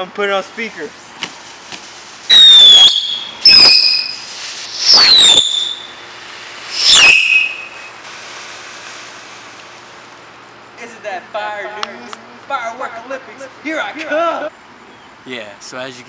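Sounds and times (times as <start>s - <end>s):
firework bangs: 1.1s - 10.2s
falling whistle: 2.3s - 6.0s, 6.7s - 8.0s.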